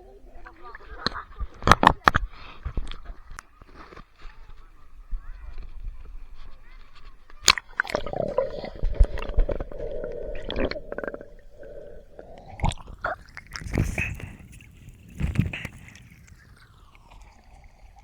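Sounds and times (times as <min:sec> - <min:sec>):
water sloshing and gurgling: 0:07.4 - 0:18.0.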